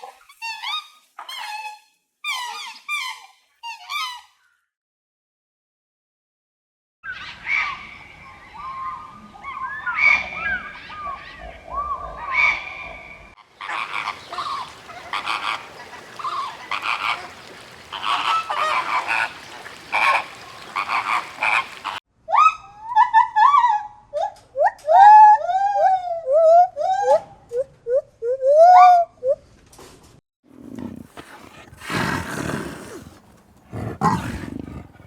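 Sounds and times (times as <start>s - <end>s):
poultry calling: 13.6s - 22.0s.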